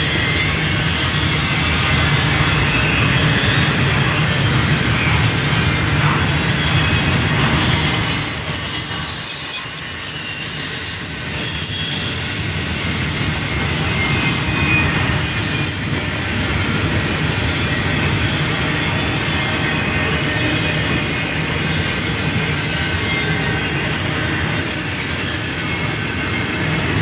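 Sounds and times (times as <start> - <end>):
train wheels rumbling and rattling: 0.0 - 27.0
high wheel squeals: 6.5 - 27.0.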